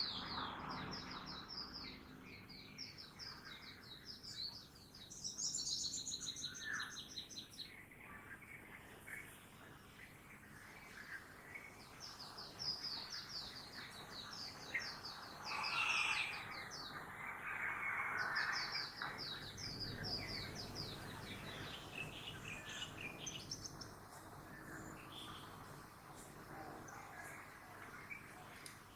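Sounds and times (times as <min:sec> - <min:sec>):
town traffic noise: 0:00.0 - 0:03.6
songbird singing chirps: 0:00.0 - 0:28.9.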